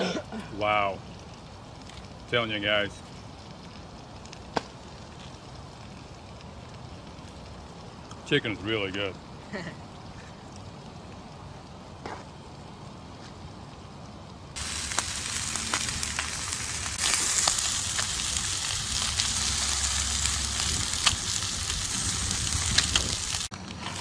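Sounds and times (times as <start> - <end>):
food frying in hot oil: 14.6 - 24.0.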